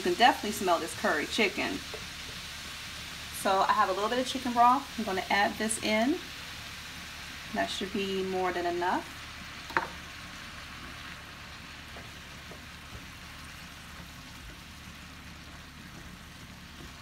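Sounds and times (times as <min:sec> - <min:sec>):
cabbage and bacon sizzling: 0:00.0 - 0:17.0
wooden spoon stirring: 0:09.7 - 0:17.0.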